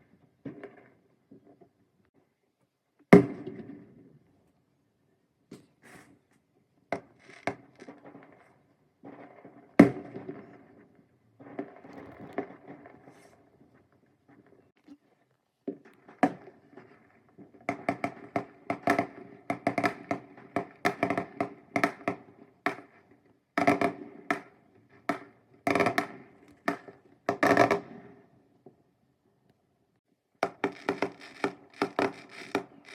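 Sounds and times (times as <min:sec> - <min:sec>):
fireworks bangs and crackles: 0:07.1 - 0:14.4, 0:15.8 - 0:28.2, 0:30.5 - 0:32.9.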